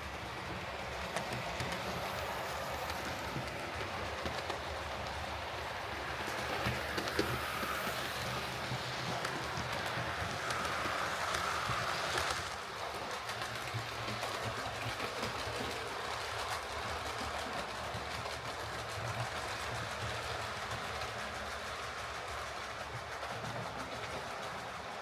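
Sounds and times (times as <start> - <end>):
model train motor whirring: 0.0 - 25.0
wheels on model rails: 0.0 - 25.0.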